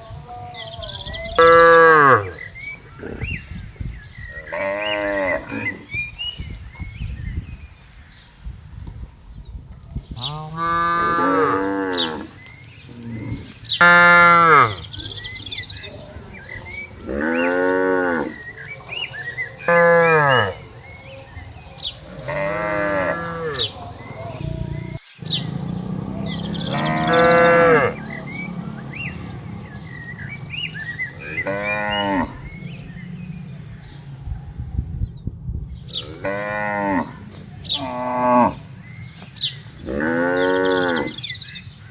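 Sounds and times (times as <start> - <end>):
cows mooing: 0.7 - 3.3, 4.4 - 6.0, 10.2 - 15.1, 16.9 - 20.7, 22.0 - 34.1, 35.9 - 38.8, 39.8 - 41.3.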